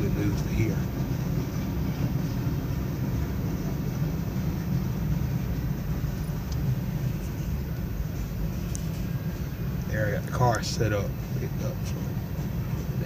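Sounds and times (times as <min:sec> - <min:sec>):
freight train rumbling: 0:00.0 - 0:13.0.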